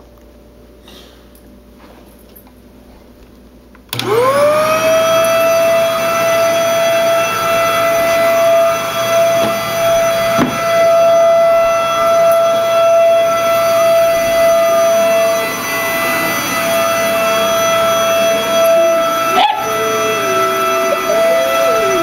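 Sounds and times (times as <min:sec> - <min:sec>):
vacuum cleaner motor whining: 0:03.9 - 0:22.0
puppy howling: 0:04.2 - 0:22.0
knock: 0:10.4 - 0:10.6.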